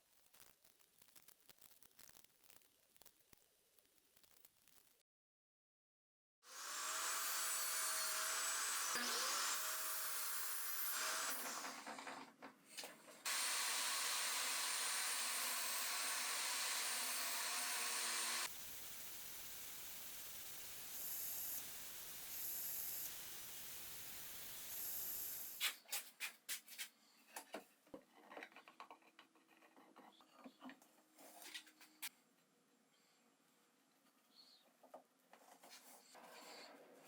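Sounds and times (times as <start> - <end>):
power tool hissing on wood: 6.5 - 11.8, 13.3 - 25.6.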